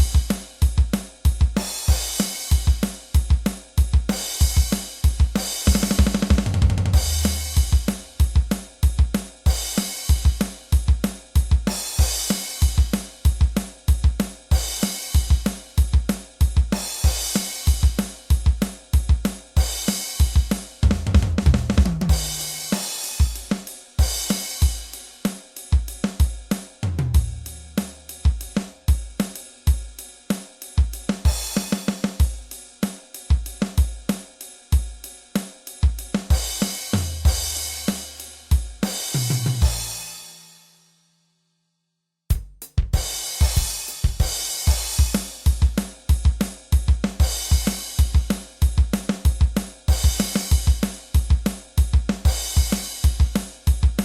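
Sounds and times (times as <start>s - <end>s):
tom fill: 0.0s - 25.0s, 42.3s - 54.0s
rock drum beat: 0.0s - 40.4s, 42.3s - 54.0s
crash cymbals: 22.1s - 25.7s.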